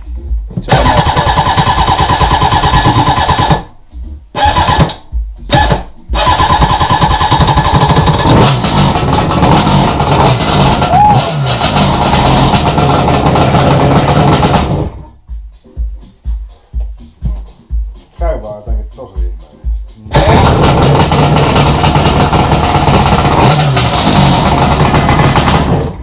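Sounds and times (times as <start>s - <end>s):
jetski engine running: 4.4s - 15.1s, 20.1s - 26.0s.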